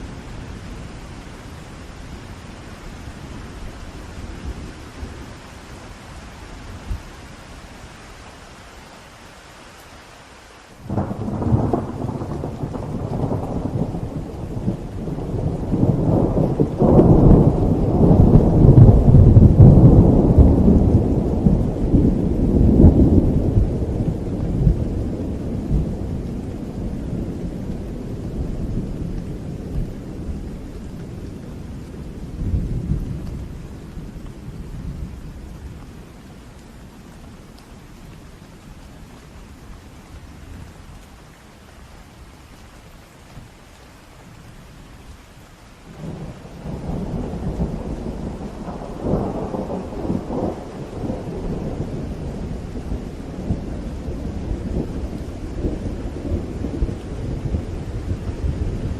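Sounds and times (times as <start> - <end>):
steady rain: 0.0 - 58.9
thunder rumbling: 10.8 - 36.8, 45.9 - 58.9.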